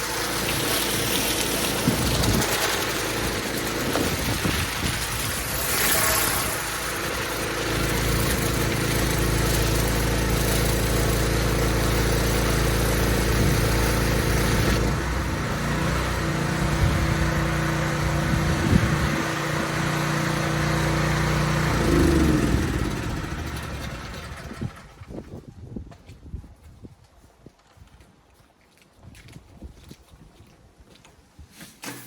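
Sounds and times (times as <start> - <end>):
water jet hissing: 0.0 - 14.8
pressure washer engine running: 0.0 - 25.2.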